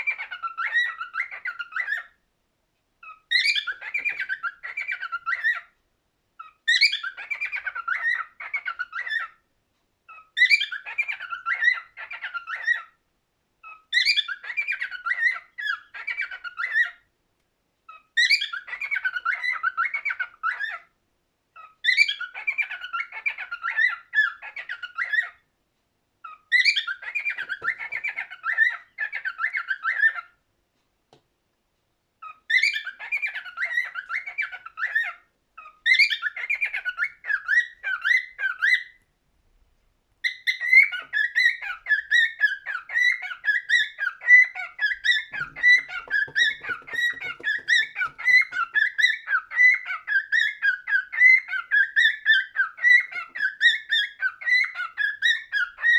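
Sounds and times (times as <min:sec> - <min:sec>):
cockatiel warbling chirps and whistles: 0:00.0 - 0:02.2, 0:03.0 - 0:05.8, 0:06.4 - 0:09.4, 0:10.1 - 0:13.0, 0:13.6 - 0:17.1, 0:17.9 - 0:20.9, 0:21.5 - 0:25.5, 0:26.2 - 0:30.4, 0:32.2 - 0:39.0, 0:40.2 - 0:55.9.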